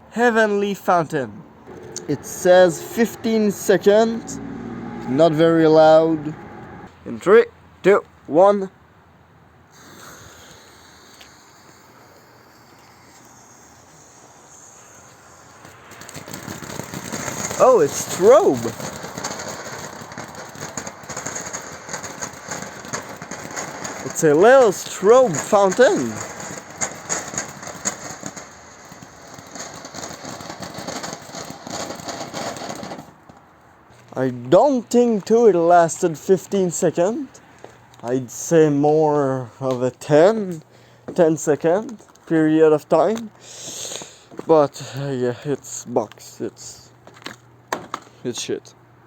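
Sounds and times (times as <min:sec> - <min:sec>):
crackling firework sparks: 0:00.2 - 0:06.2, 0:09.7 - 0:48.6
firework fuse hissing: 0:09.7 - 0:33.2, 0:43.2 - 0:45.1.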